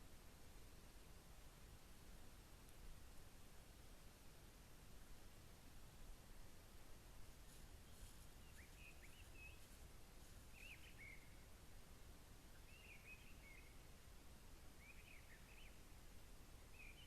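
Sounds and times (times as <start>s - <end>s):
low background hiss and rumble: 0.0s - 17.0s
small bird chirping: 7.8s - 9.8s, 10.4s - 11.5s, 12.5s - 13.9s, 14.8s - 15.8s.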